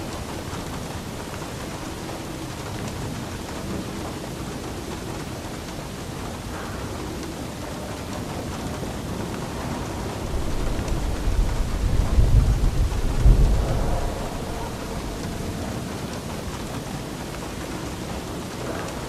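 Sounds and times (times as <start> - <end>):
low rumble of thunder: 0.0 - 19.0
steady rain falling: 0.0 - 19.0.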